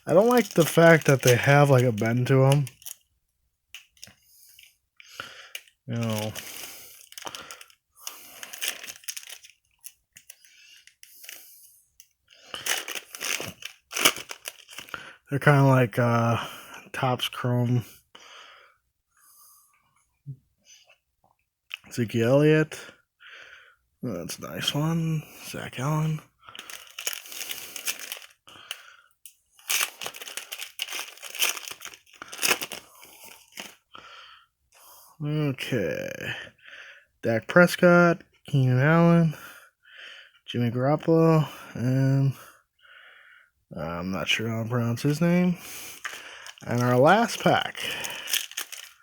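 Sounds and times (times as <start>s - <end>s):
wrapper crinkling: 0.0s - 3.0s, 5.5s - 11.4s, 12.5s - 15.1s, 26.5s - 28.8s, 29.6s - 33.8s, 45.0s - 49.0s
trading cards rustling and clicking: 0.0s - 3.1s, 3.7s - 4.7s, 5.5s - 15.0s, 25.6s - 33.8s, 44.9s - 49.0s.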